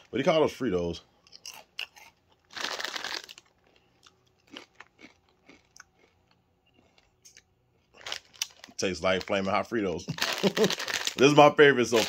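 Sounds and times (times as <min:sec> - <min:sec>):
crunchy chewing: 0:01.2 - 0:09.4
biting crunchy chip: 0:01.3 - 0:09.4, 0:10.2 - 0:11.3.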